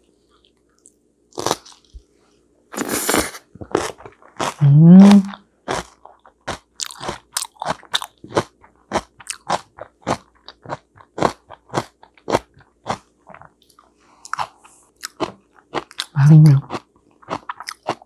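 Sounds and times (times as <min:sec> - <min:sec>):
chewing with smacking clicks: 0:05.7 - 0:18.0.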